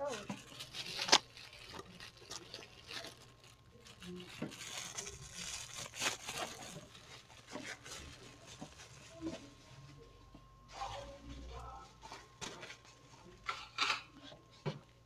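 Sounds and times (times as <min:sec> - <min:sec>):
plastic cup crinkling: 0:00.0 - 0:09.4.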